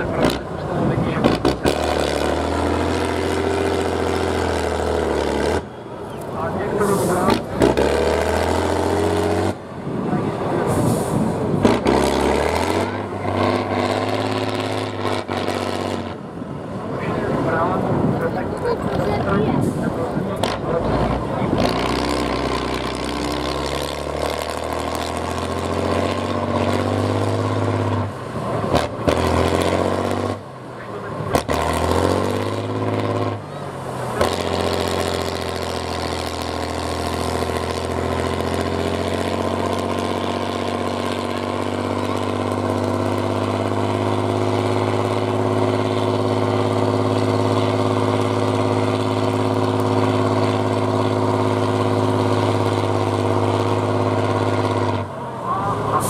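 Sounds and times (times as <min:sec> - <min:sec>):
truck engine revving: 0:00.0 - 0:56.0.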